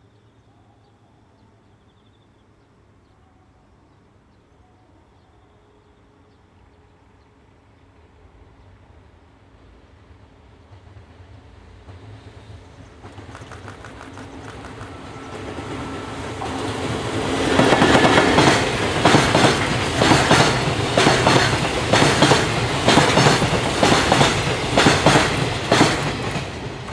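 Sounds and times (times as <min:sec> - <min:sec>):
train rumble: 0:06.7 - 0:26.9
wheels clickety-clack on rail joints: 0:10.6 - 0:26.9.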